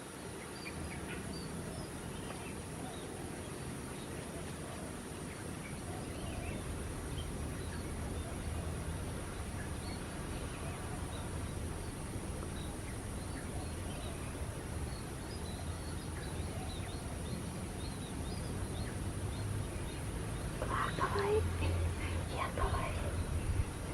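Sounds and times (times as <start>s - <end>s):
small birds chirping: 0.0s - 23.9s
low background rumble: 6.0s - 23.9s.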